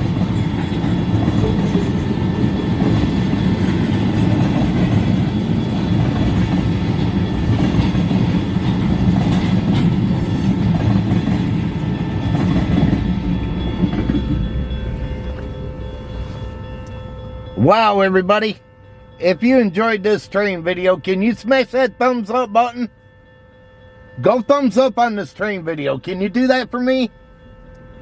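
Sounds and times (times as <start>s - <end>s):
wheels clacking over rail joints: 0.0s - 14.5s
train wheels rumbling on rails: 0.0s - 18.5s.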